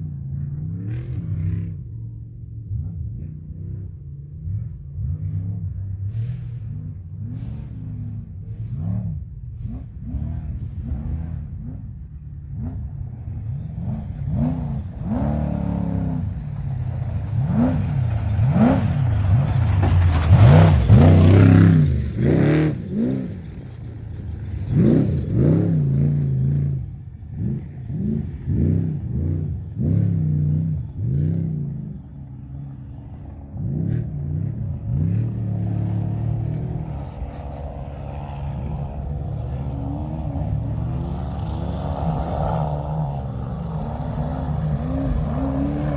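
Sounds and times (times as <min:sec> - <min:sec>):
truck engine revving hard: 0:03.1 - 0:45.9
tyre and gravel noise: 0:13.1 - 0:25.7.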